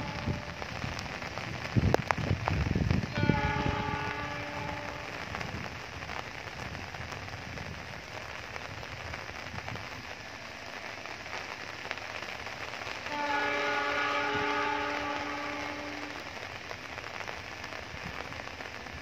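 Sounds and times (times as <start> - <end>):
train horn: 0.0 - 1.0, 3.0 - 5.6, 13.0 - 16.4
steady rain: 0.0 - 19.0.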